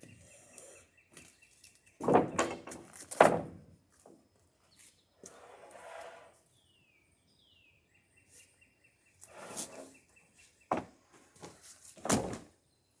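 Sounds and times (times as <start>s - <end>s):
boards scraping: 2.0s - 3.6s, 5.2s - 6.4s, 9.2s - 10.0s
wooden boards knocking: 2.0s - 3.6s.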